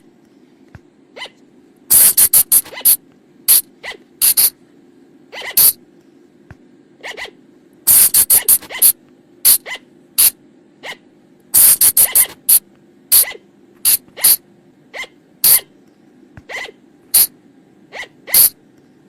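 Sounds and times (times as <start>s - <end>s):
steady low hum: 0.0s - 19.0s
flying lemur shrill cries: 1.2s - 4.5s, 5.3s - 5.8s, 11.6s - 12.4s, 13.1s - 14.4s, 15.0s - 15.7s, 17.9s - 18.6s.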